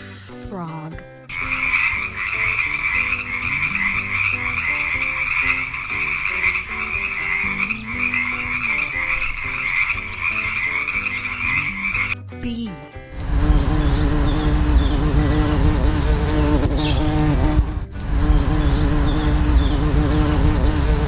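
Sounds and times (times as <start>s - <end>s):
frogs croaking in chorus: 1.4s - 11.1s.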